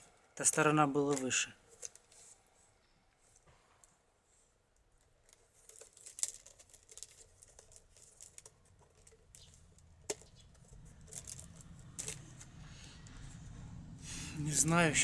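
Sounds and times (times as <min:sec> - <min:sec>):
wooden basket crackling: 0:05.2 - 0:13.4.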